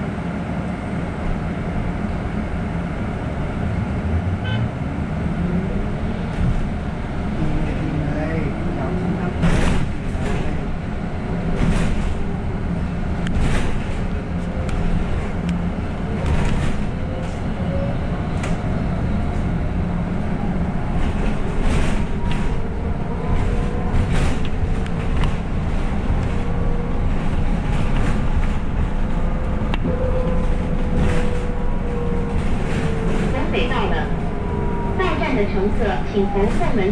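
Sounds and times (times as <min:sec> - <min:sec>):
bus engine rumble: 0:00.0 - 0:36.9
rattles and knocks: 0:13.2 - 0:15.4.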